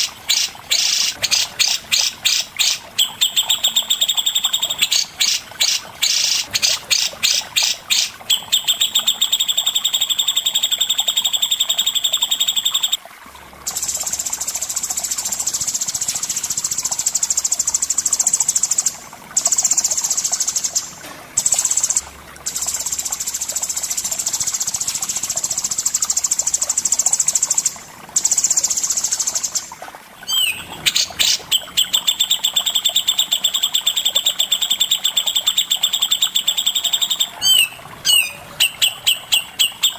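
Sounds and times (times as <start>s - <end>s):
songbird trills: 30.3s - 39.9s.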